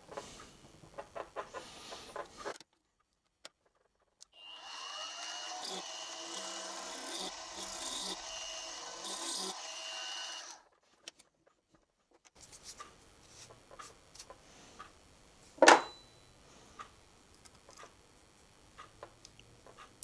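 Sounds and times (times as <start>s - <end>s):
milling machine cutting metal: 4.4s - 10.6s.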